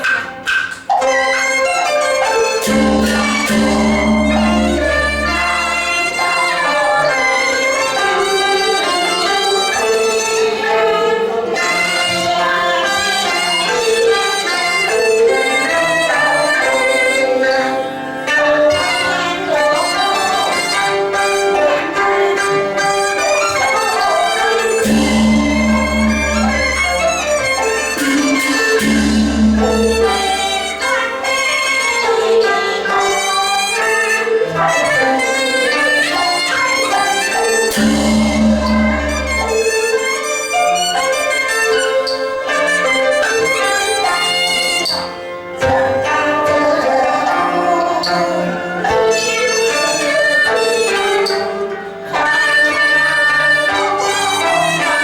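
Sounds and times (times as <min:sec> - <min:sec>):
bowed fiddles melody: 0:02.4 - 0:45.5.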